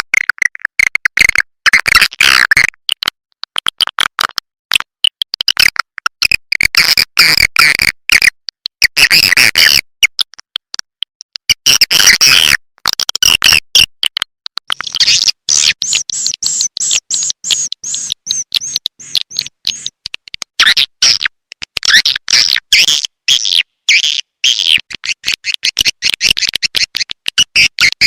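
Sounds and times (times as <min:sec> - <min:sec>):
swiftlet chirps and clicks: 0:14.8 - 0:20.8, 0:23.9 - 0:28.0.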